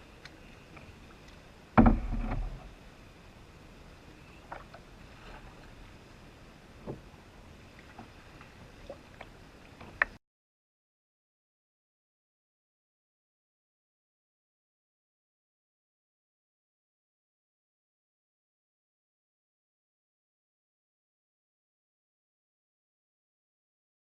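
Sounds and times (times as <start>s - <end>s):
faint background hiss: 0.0s - 10.2s
loud thump: 1.8s - 2.5s
paddle knocking on canoe: 1.8s - 2.7s.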